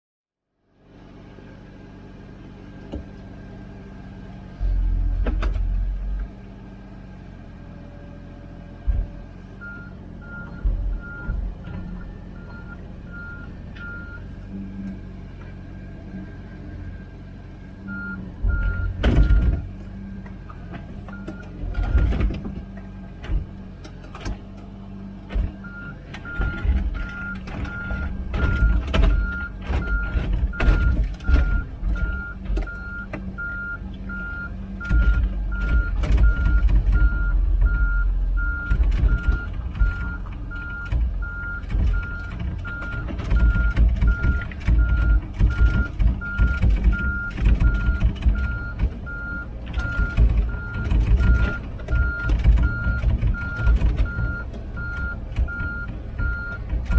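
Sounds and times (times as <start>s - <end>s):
excavator diesel engine running: 0.6s - 56.9s
track clanks and rattles: 4.5s - 6.4s, 18.0s - 56.9s.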